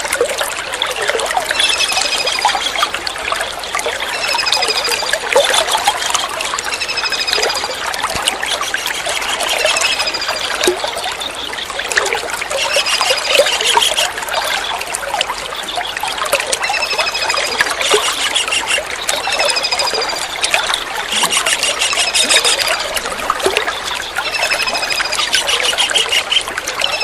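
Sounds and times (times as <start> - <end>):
water trickling: 0.0 - 27.0
kingfisher trilling calls: 12.4 - 14.6, 16.7 - 27.0.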